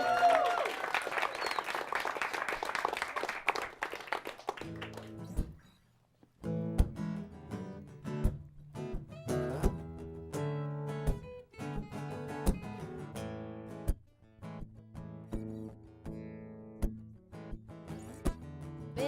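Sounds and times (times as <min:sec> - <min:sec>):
applause: 0:00.0 - 0:05.6
acoustic guitar strumming: 0:06.4 - 0:19.0.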